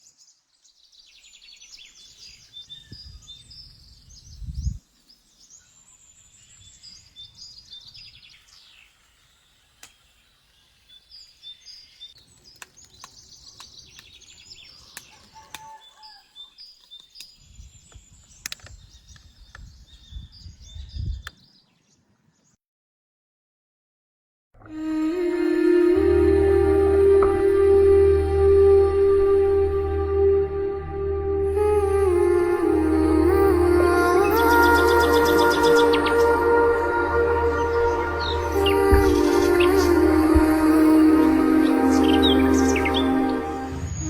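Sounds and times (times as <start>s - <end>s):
small birds chirping: 0.0s - 22.6s
low rumbling microphone noise: 24.6s - 44.0s.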